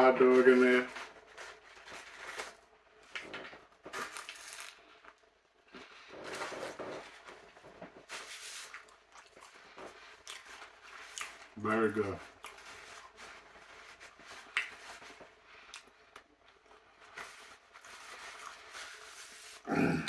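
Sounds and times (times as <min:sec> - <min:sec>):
chewing: 0:03.1 - 0:07.4, 0:08.2 - 0:11.6, 0:12.2 - 0:20.0.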